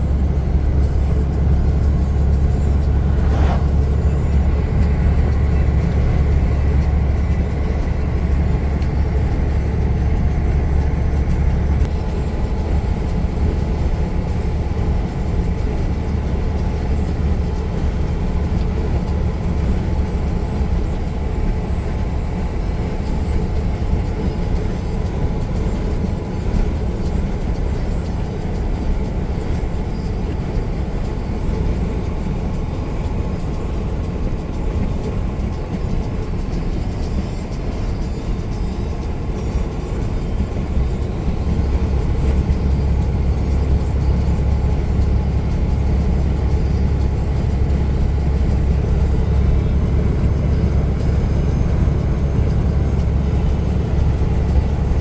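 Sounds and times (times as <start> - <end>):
faint whine: 0.0 - 15.7
road noise: 0.0 - 55.0
truck diesel engine droning: 0.0 - 55.0.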